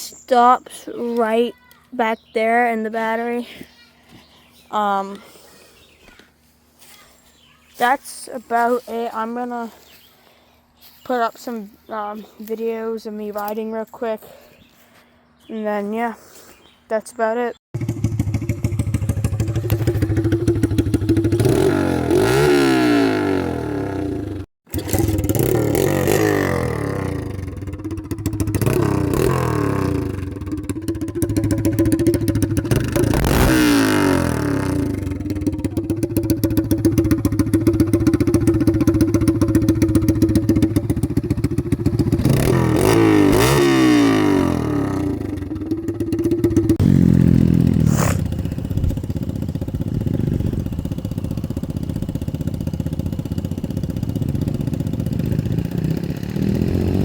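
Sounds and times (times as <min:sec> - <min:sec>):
dirt bike engine revving: 0:17.8 - 0:57.0.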